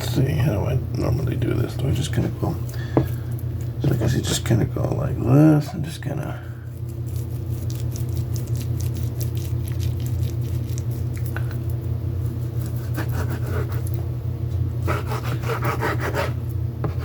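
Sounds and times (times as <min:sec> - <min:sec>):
steady low hum: 0:00.0 - 0:17.0
wet squishing of raw meat: 0:06.7 - 0:11.8.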